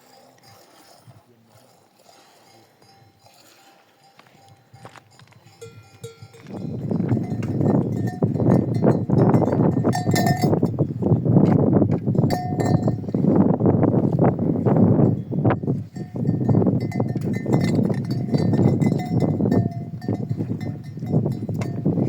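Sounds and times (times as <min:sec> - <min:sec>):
goat bells clanking: 0:02.2 - 0:11.0, 0:12.1 - 0:13.4, 0:15.0 - 0:22.0.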